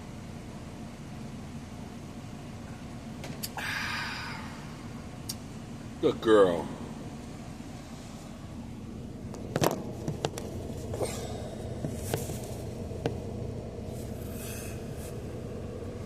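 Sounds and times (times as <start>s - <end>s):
steady low hum: 0.0s - 16.0s
sharp clicks and knocks: 9.3s - 10.5s.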